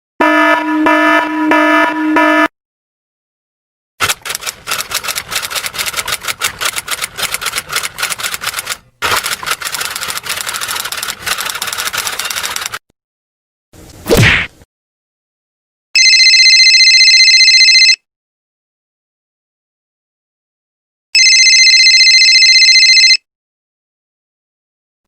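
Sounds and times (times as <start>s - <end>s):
horn honking: 0.2s - 2.5s
rapid clicking clatter: 4.0s - 12.8s.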